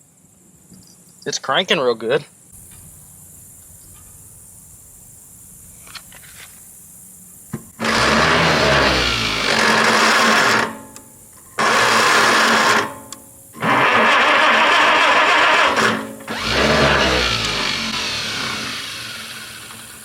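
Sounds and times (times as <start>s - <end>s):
starter motor cranking engine: 7.7s - 10.8s, 11.6s - 12.9s, 13.6s - 20.0s.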